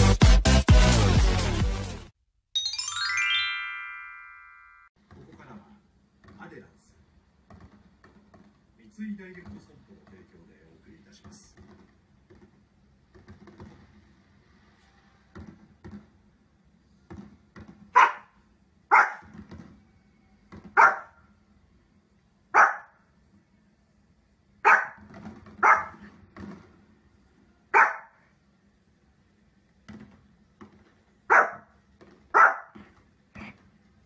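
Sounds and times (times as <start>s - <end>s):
dog barking: 17.9s - 19.3s, 20.8s - 21.2s, 22.5s - 23.0s, 24.6s - 25.0s, 25.6s - 26.1s, 27.7s - 28.2s, 31.3s - 31.7s, 32.3s - 32.8s.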